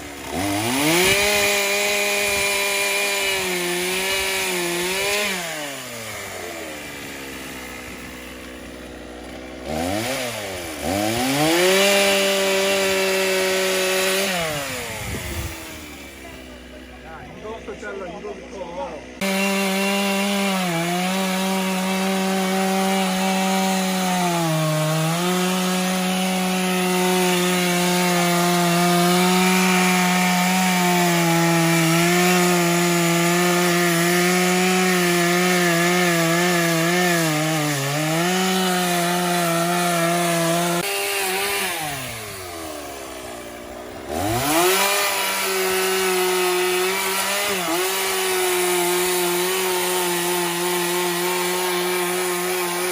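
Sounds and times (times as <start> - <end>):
chainsaw cutting logs: 0.0 - 52.9.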